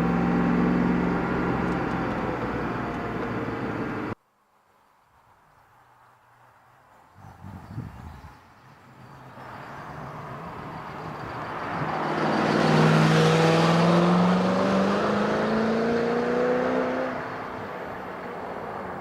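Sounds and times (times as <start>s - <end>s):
car engine accelerating: 0.0s - 4.2s, 9.4s - 18.0s.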